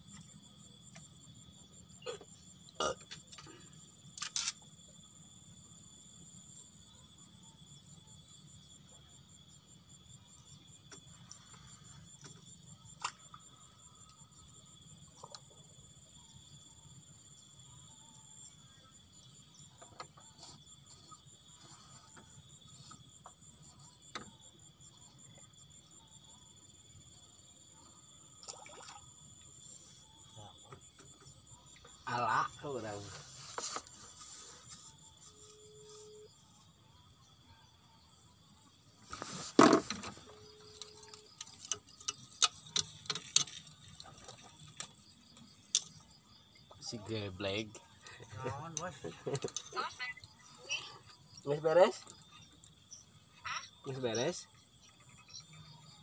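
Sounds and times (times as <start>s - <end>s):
crickets chirring: 0.0s - 56.0s
sharp clicks and knocks: 41.4s - 43.8s.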